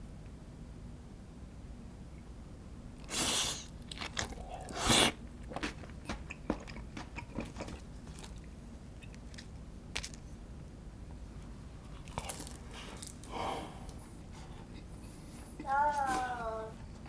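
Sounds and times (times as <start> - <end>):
wet chewing clicks: 3.0 - 10.2.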